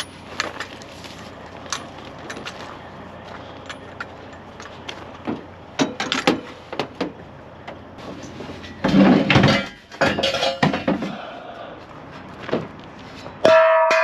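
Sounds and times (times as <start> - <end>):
loud scraping clatters: 8.0 - 11.4.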